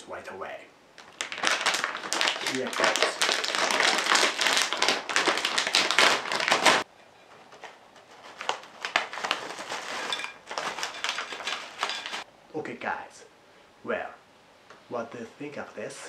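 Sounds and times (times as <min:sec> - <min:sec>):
snack bag crinkling: 0:01.0 - 0:06.8, 0:07.5 - 0:12.2.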